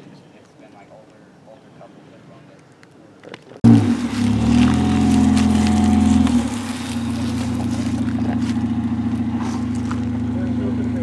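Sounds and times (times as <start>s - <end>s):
car engine idling: 3.6s - 11.0s.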